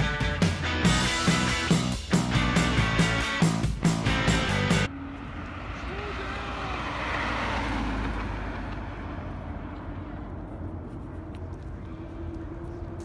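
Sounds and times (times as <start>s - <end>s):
vehicle low rumble: 0.9s - 13.0s.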